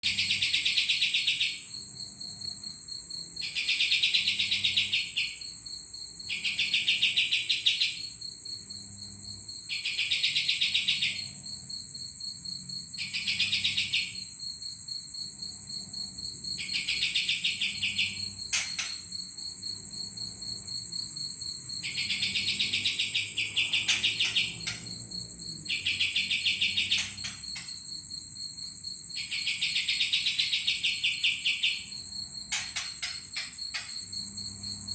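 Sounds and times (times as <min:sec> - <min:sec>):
songbird rattling trill: 0:00.0 - 0:01.7, 0:03.4 - 0:05.5, 0:06.2 - 0:08.1, 0:09.6 - 0:11.4, 0:13.0 - 0:14.4, 0:16.5 - 0:28.4, 0:29.0 - 0:34.9.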